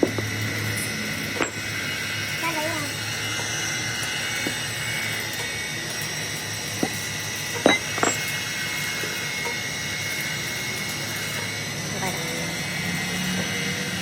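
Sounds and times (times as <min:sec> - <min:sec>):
workshop machinery hum and whine: 0:00.0 - 0:14.0.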